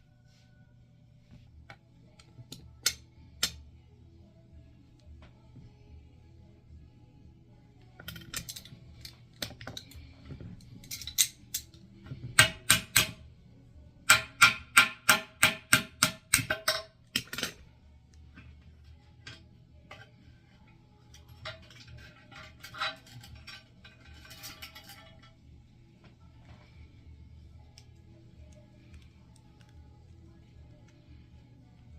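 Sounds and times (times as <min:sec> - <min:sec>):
tools clicking on toilet hardware: 0:08.0 - 0:13.2, 0:14.1 - 0:17.6, 0:21.1 - 0:25.4.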